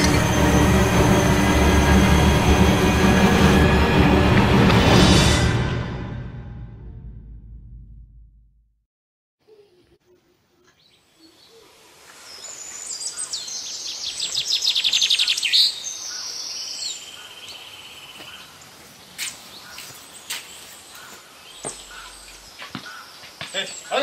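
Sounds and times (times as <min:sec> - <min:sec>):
birds singing and chirping: 0:09.6 - 0:24.0.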